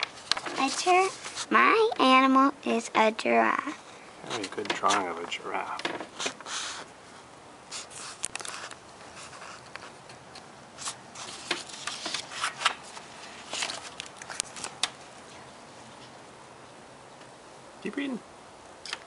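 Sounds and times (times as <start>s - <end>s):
pages turning: 0.0s - 1.5s, 7.7s - 10.0s, 10.8s - 15.0s
paper rustling: 0.0s - 1.6s, 4.2s - 10.0s, 10.8s - 16.1s.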